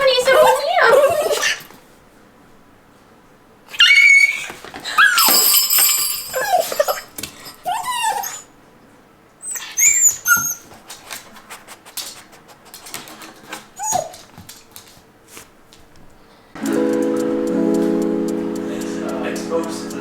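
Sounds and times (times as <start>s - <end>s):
dog whining: 0.0s - 1.7s, 3.7s - 5.4s, 6.0s - 8.5s, 9.4s - 10.8s, 13.8s - 14.3s.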